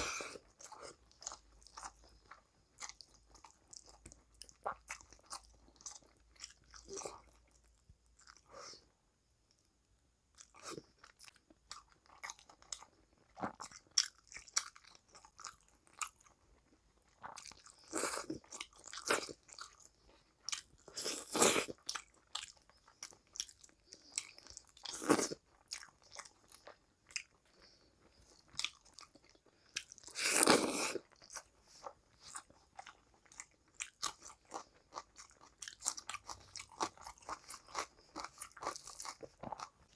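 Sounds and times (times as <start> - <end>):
person chewing food: 0.0 - 8.9, 10.3 - 39.9.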